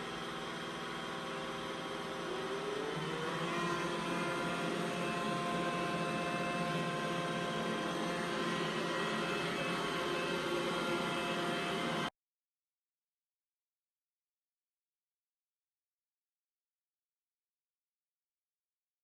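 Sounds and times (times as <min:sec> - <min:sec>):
robot vacuum whirring: 0:00.0 - 0:12.1.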